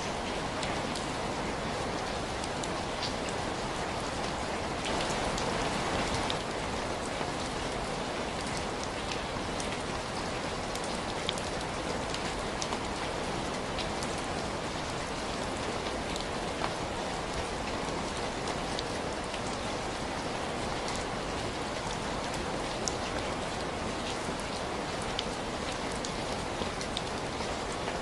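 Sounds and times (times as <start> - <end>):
steady rain hiss: 0.0 - 28.0.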